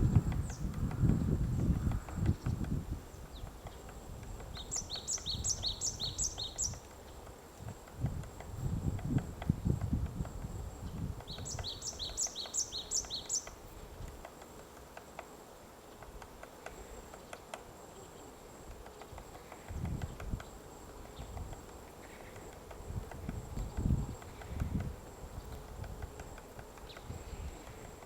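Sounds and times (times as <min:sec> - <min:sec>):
woodpecker pecking wood: 0:00.2 - 0:28.0
bird chirping: 0:04.5 - 0:07.2, 0:10.8 - 0:13.6.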